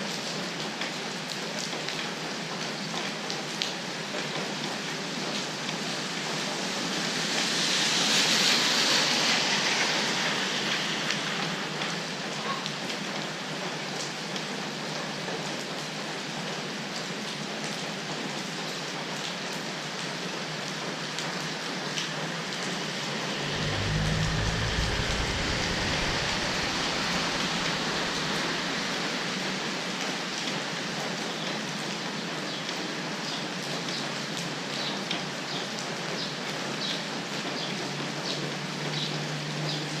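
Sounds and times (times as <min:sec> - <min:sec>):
steady rain falling: 0:00.0 - 0:40.0
deep low rumble: 0:21.9 - 0:30.0.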